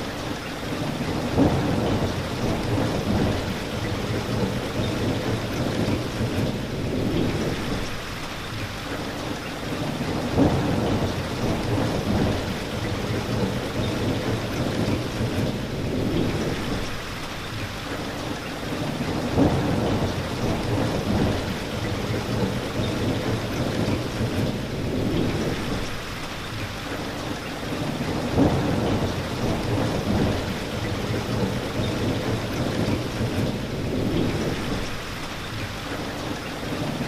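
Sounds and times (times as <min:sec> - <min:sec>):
steady rain falling: 0:00.0 - 0:37.0
low rolling thunder: 0:00.8 - 0:08.0, 0:09.9 - 0:17.0, 0:18.8 - 0:26.2, 0:27.8 - 0:35.5.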